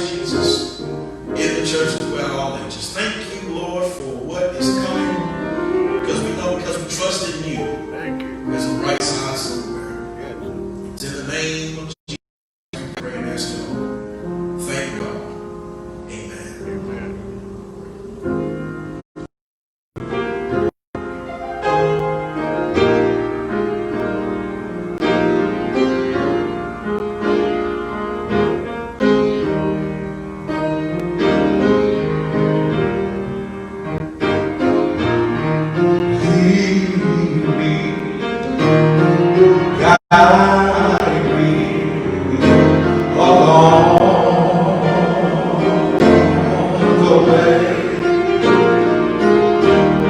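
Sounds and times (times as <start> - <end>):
piano playing sustained chords: 0.0 - 11.9, 12.8 - 19.0, 20.0 - 50.0
voices singing: 39.8 - 48.3.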